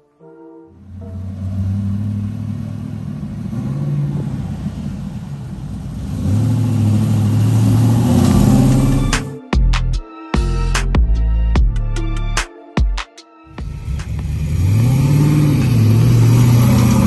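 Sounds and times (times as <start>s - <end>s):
car engine approaching: 0.7s - 9.4s, 13.6s - 17.0s.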